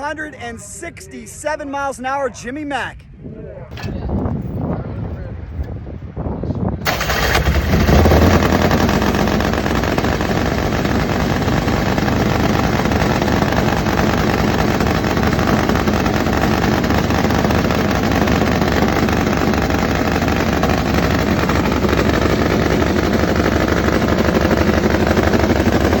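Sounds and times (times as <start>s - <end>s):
drag bike engine crackling exhaust: 6.8s - 26.0s.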